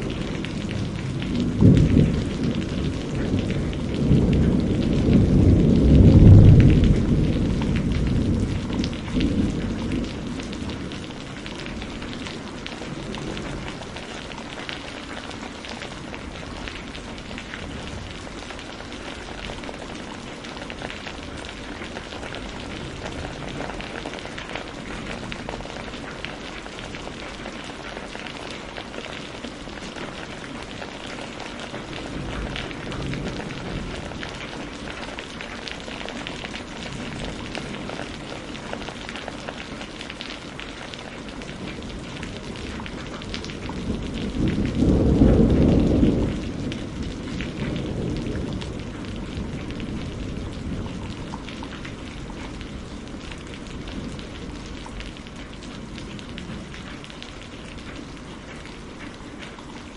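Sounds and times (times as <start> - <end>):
thunder rolling: 0.0 - 14.0, 41.6 - 55.2
steady rain patter: 0.0 - 59.9.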